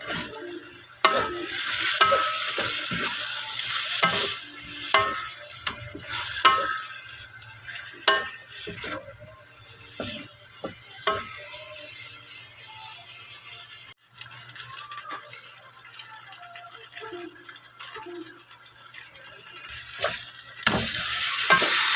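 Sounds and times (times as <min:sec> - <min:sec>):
food sizzling in a frying pan: 0:00.0 - 0:21.9
metal utensil clacking on pan: 0:01.0 - 0:03.2, 0:04.0 - 0:07.1, 0:07.8 - 0:09.2, 0:20.0 - 0:21.9.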